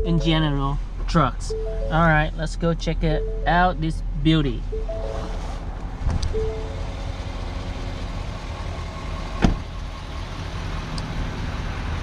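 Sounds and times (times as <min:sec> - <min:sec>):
low engine rumble: 0:00.0 - 0:12.0
truck door shutting: 0:09.4 - 0:09.7.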